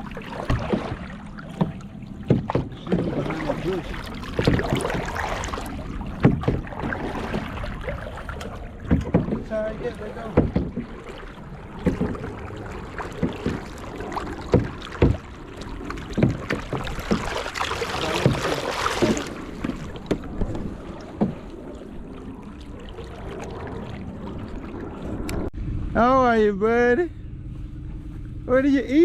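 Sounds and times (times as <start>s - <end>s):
paddle strokes splashing: 0.0s - 25.5s
knocks against canoe hull: 0.5s - 3.6s, 4.3s - 5.1s, 6.2s - 7.4s, 8.8s - 9.5s, 10.2s - 11.0s, 11.8s - 12.3s, 14.5s - 15.2s, 16.1s - 21.5s.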